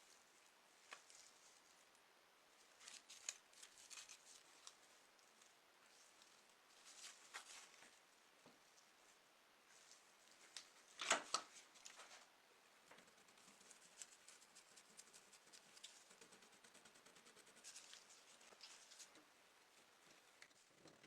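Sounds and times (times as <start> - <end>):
light scratching and ticking: 2.7 - 8.0, 9.7 - 21.0.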